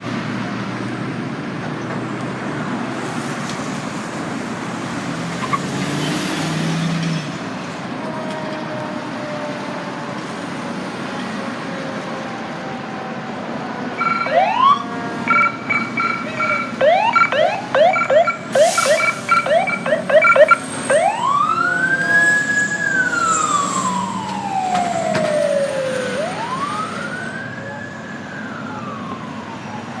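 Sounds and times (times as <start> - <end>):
road noise: 0.0 - 30.0
electronic siren: 14.0 - 27.4.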